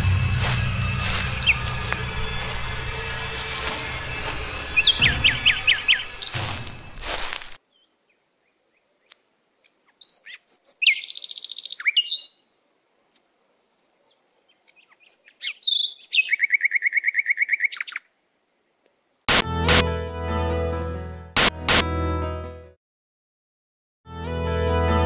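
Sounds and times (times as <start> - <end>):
bird chirping and trilling: 1.1 - 1.7, 3.6 - 12.5, 14.5 - 18.1.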